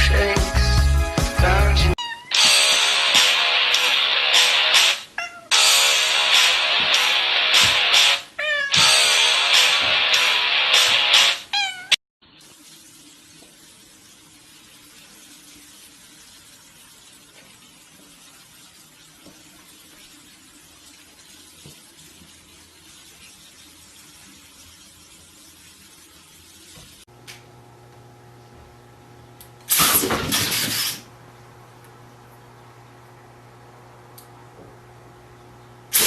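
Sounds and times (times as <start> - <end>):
cat yowling: 2.0 - 2.4, 5.2 - 5.6, 8.4 - 8.9, 11.5 - 12.0.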